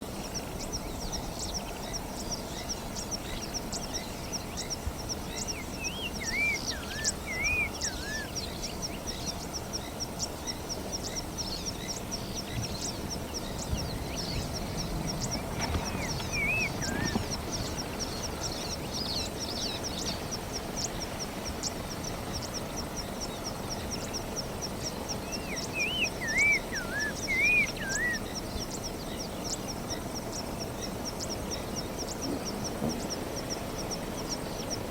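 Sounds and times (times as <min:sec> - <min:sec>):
bird whistling song: 0:05.4 - 0:09.3, 0:15.8 - 0:19.9, 0:25.3 - 0:28.4.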